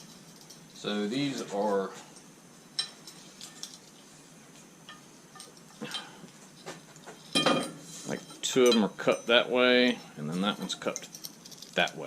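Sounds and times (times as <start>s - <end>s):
small metal parts clinking: 0.0s - 1.6s, 2.8s - 4.0s, 8.5s - 12.0s.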